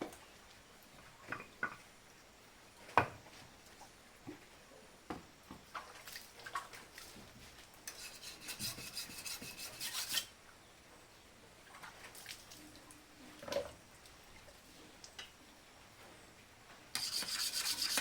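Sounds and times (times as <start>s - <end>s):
hand file scraping steel: 7.9s - 10.3s, 17.0s - 18.0s.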